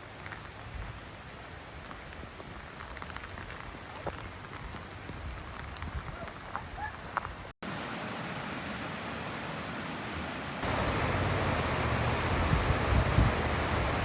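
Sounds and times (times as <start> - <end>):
rain pattering: 0.0 - 14.0
steady rushing noise: 10.6 - 14.0.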